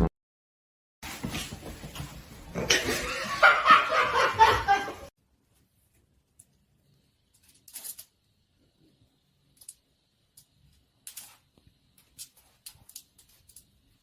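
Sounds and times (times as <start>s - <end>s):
person laughing: 2.7s - 5.1s.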